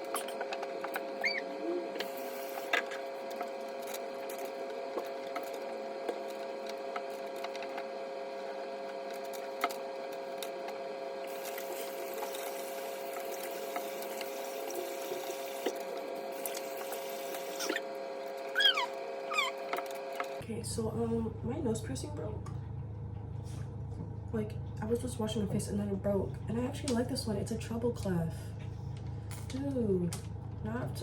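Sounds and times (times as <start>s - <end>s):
tap water running into sink: 11.3s - 15.8s.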